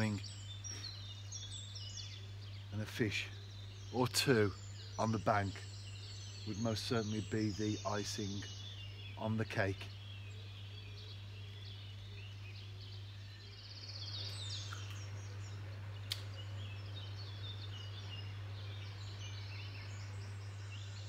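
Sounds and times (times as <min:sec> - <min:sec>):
songbirds singing: 0:00.0 - 0:21.0
steady low hum: 0:00.0 - 0:21.0
sharp click: 0:16.1 - 0:16.4.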